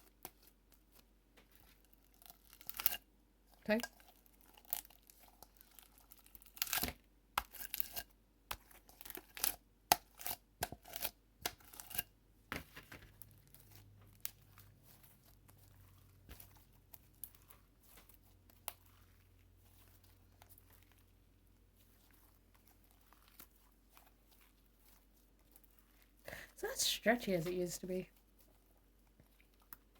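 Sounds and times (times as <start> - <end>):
slime crackling and popping: 13.2 - 21.2.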